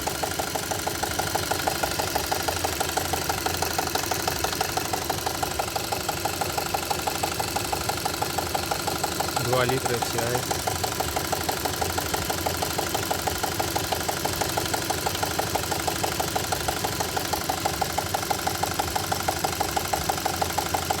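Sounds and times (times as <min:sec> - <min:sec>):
car engine idling: 0:00.0 - 0:21.0
rapid engine knock: 0:00.0 - 0:21.0.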